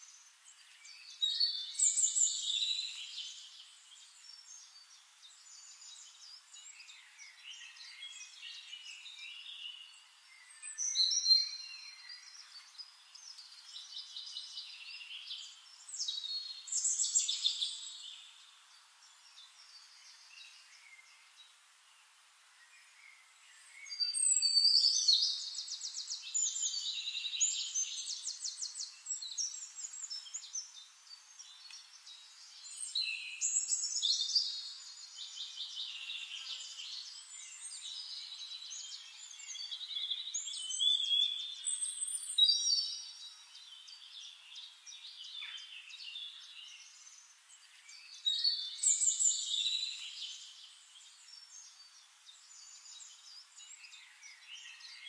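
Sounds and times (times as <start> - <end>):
birds singing with trills: 0.0 - 21.6, 22.6 - 55.0
soft bird chirping: 0.0 - 55.0.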